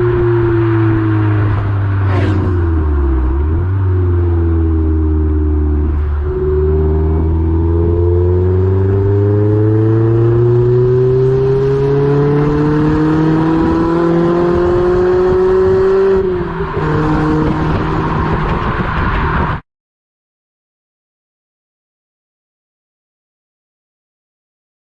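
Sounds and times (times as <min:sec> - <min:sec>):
car engine accelerating: 0:00.0 - 0:19.6.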